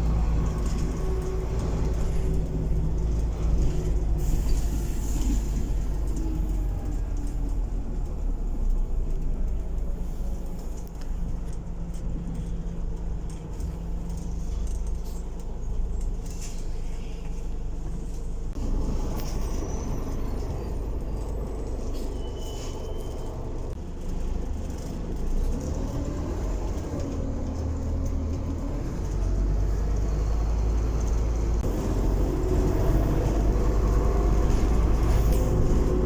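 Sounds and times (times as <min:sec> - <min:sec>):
bus body rattles: 0:00.0 - 0:36.0
bus engine rumble: 0:00.0 - 0:36.0.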